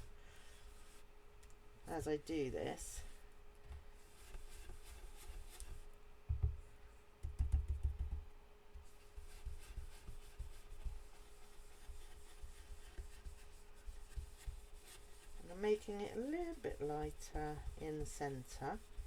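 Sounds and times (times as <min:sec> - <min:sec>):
faint steady hum: 0:00.0 - 0:19.0
brush scratching on cardstock: 0:04.0 - 0:05.9, 0:08.8 - 0:19.0
dull bumps against table: 0:06.3 - 0:06.6.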